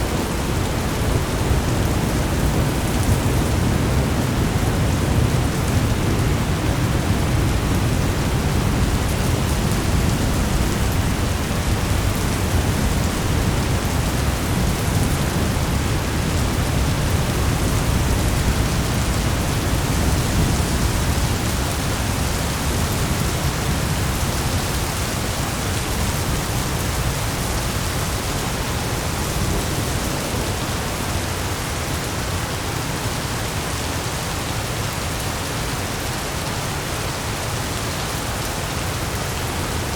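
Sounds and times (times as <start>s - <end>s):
low rumble of thunder: 0.0s - 31.7s
heavy rain: 0.0s - 39.9s.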